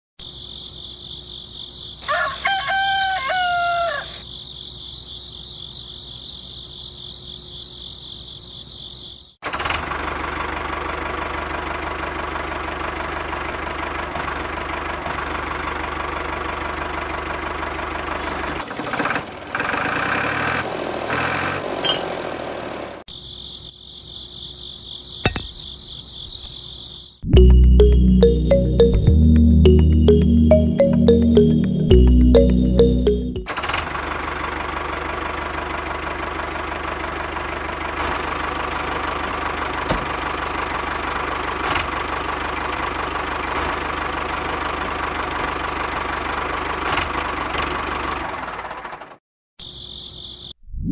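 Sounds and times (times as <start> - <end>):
rooster crowing: 2.0 - 4.2
high-pitched drone: 27.4 - 33.5.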